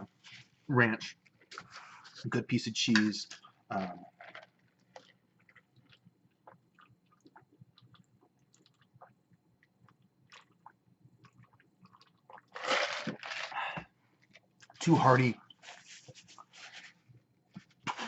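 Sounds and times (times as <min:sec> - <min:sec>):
person chewing food: 0:04.2 - 0:12.8.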